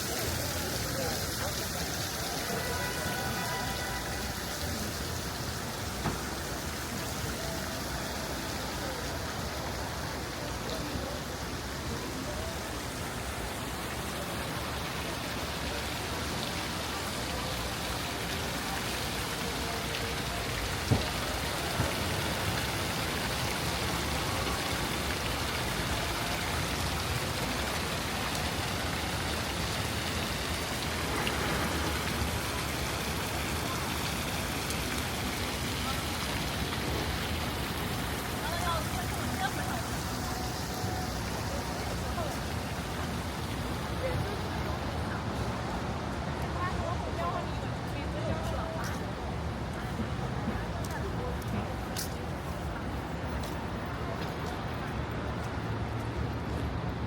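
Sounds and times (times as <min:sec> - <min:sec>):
city street ambience hiss: 0:00.0 - 0:57.0.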